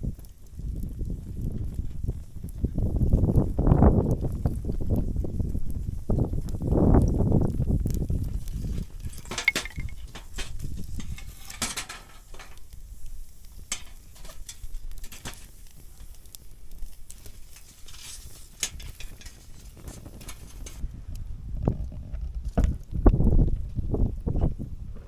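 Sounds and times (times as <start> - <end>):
wind rumble on microphone: 0.0 - 25.0
metal utensils clinking on cookware: 9.1 - 12.6.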